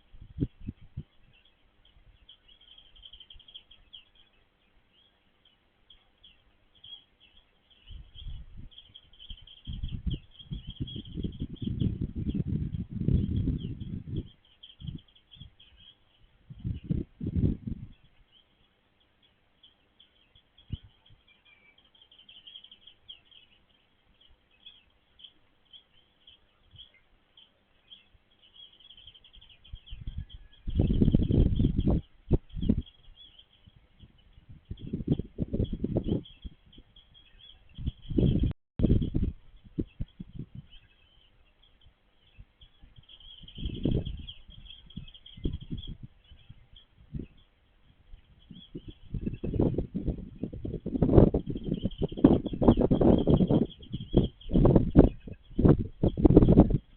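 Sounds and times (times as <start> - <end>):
small birds chirping: 0.0 - 56.9
low rumbling thumps: 9.7 - 15.0, 16.5 - 18.1, 37.8 - 40.8.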